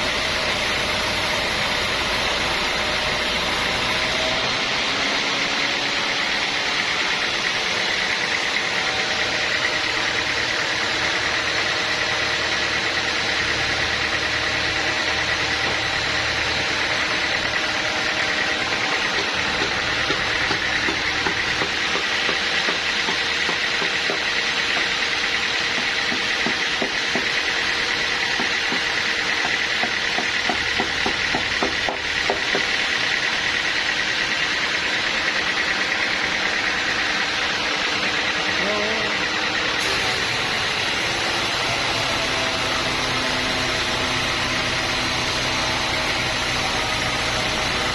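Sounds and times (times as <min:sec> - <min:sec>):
engine drone: 0:00.0 - 0:47.9
high machine whine: 0:00.0 - 0:47.9.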